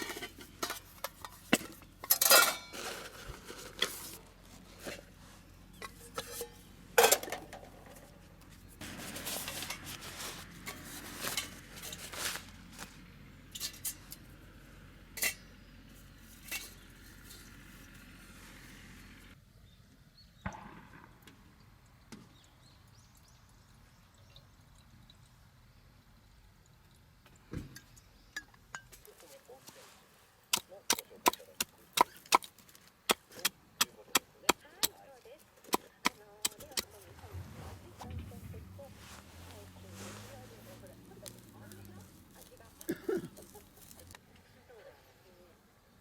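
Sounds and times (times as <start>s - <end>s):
metal cooking gear clinking: 0.0s - 4.0s.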